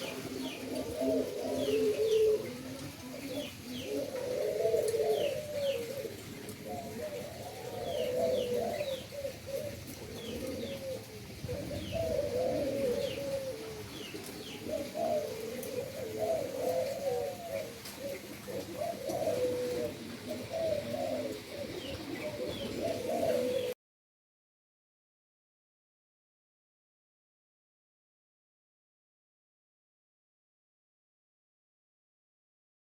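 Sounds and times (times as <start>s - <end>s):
doves cooing: 0.0s - 23.8s
small birds chirping: 0.0s - 23.8s.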